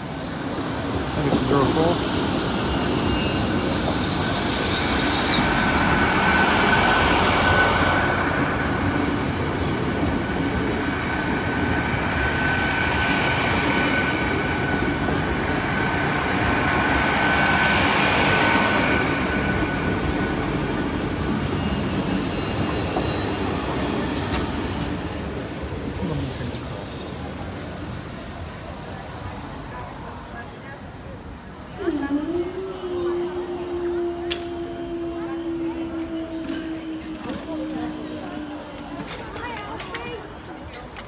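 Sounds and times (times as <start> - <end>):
high wheel squeal: 0.0 - 7.8, 21.4 - 24.3, 26.9 - 37.6
train engines and wheels rumbling: 0.0 - 41.0.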